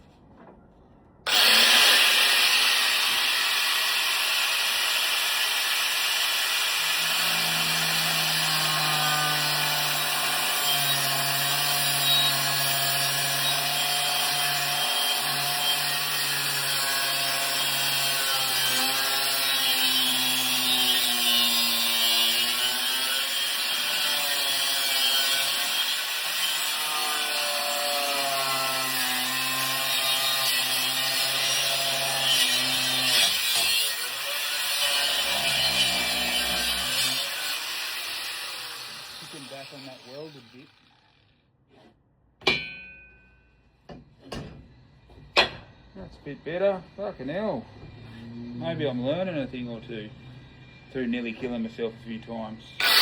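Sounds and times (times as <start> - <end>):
angle grinder cutting metal: 1.3 - 41.3, 52.8 - 53.0.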